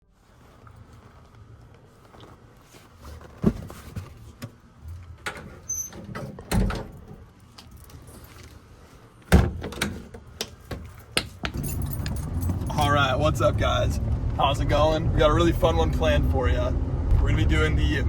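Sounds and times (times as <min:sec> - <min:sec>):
door clunks and thumps: 0:05.2 - 0:07.2, 0:09.3 - 0:12.6
handling clatter: 0:09.6 - 0:12.9.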